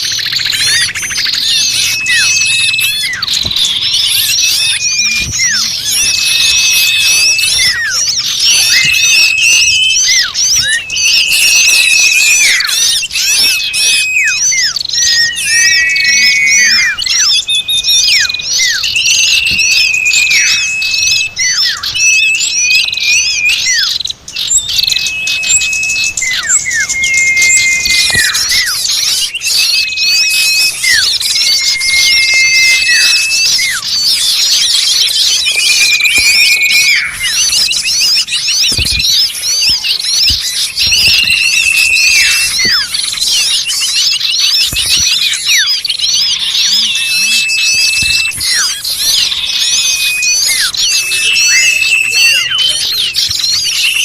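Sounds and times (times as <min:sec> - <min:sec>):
small birds chirping: 0:00.0 - 0:54.0
whistled bird notes: 0:00.0 - 0:54.0.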